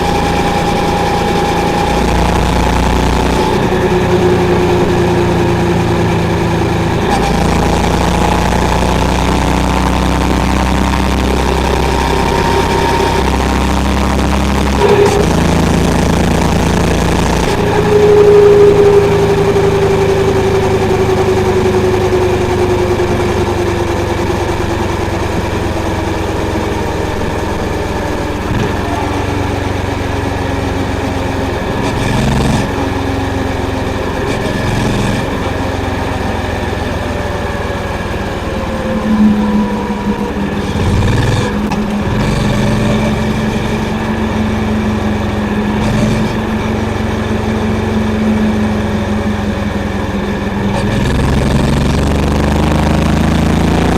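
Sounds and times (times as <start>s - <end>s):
motorcycle engine and exhaust: 0.0s - 53.9s.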